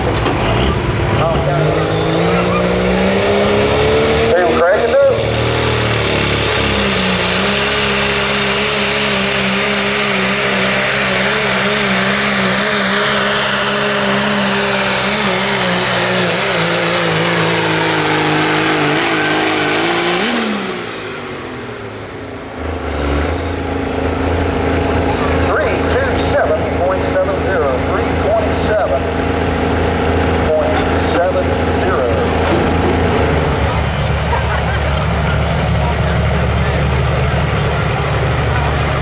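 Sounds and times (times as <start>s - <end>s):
diesel truck engine at high revs: 0.0s - 39.0s.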